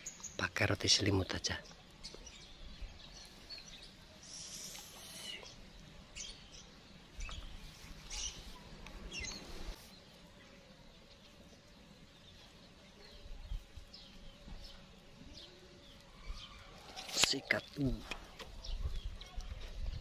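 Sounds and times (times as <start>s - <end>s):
high bird chirps: 6.2s - 9.9s.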